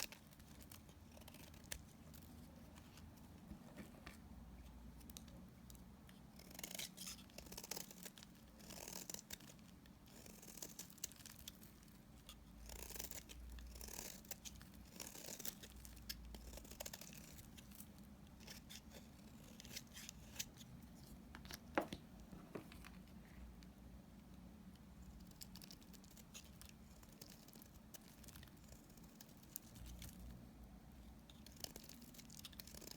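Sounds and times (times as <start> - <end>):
blade cutting dried soap: 6.2 - 20.8.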